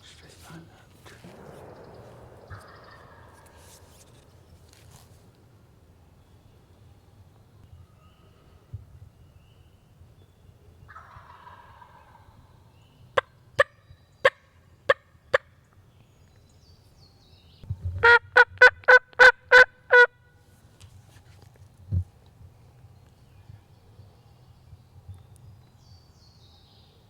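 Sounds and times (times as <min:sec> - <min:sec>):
turkey yelping: 0:02.5 - 0:04.1, 0:10.9 - 0:12.2, 0:18.0 - 0:20.1.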